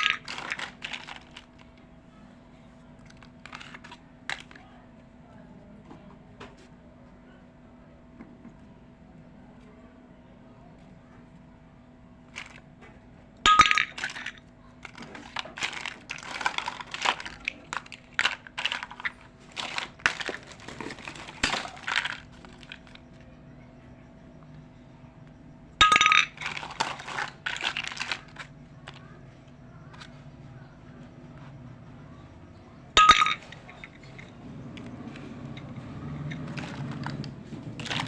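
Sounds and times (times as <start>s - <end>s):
toy kitchen pieces clinking: 0.0s - 1.8s, 3.0s - 4.7s, 12.3s - 12.6s, 13.5s - 23.4s, 25.8s - 30.2s, 32.6s - 38.0s.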